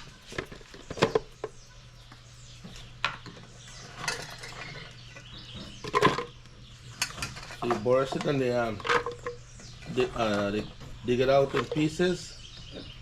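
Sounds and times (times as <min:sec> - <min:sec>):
steady low hum: 0:00.0 - 0:13.0
utensils and dishes clinking: 0:03.9 - 0:05.0.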